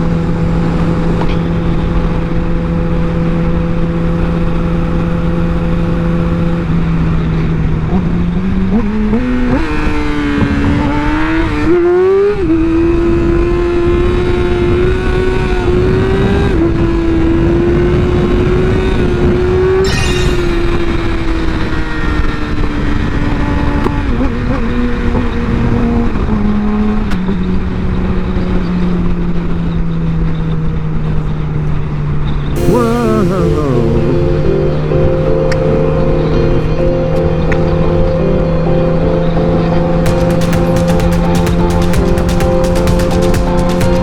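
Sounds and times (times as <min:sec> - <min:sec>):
motorcycle engine accelerating: 0:00.0 - 0:19.8, 0:37.6 - 0:44.0.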